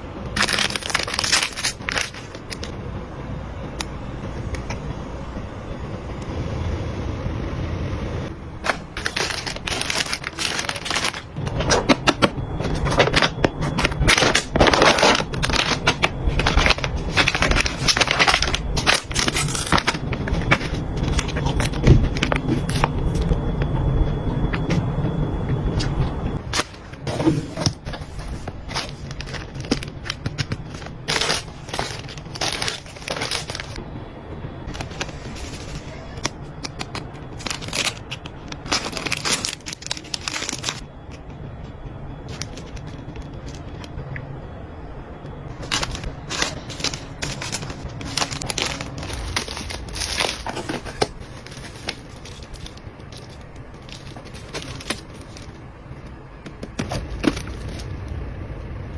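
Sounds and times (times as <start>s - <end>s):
low steady hum: 0.0s - 58.9s
objects clicking and crinkling: 8.6s - 23.3s, 25.8s - 33.8s, 34.7s - 41.2s, 42.3s - 43.9s, 45.5s - 58.2s.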